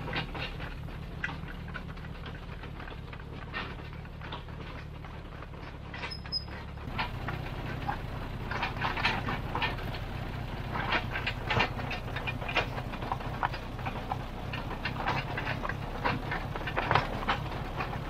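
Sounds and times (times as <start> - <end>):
dozer engine running: 0.0 - 18.0
steel tracks clanking: 5.8 - 18.0.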